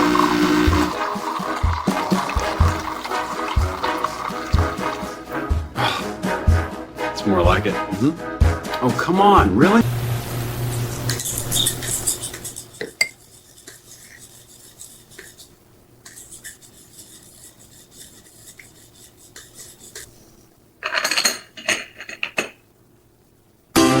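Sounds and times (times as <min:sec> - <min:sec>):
cups and cutlery clinking: 0:00.0 - 0:05.4, 0:11.2 - 0:14.4, 0:20.8 - 0:22.6
cutlery rattling: 0:20.8 - 0:22.6.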